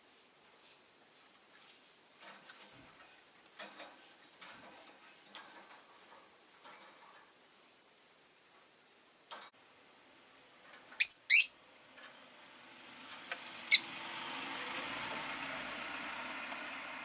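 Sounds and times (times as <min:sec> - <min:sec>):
lovebirds shrill calls: 0:11.0 - 0:11.6.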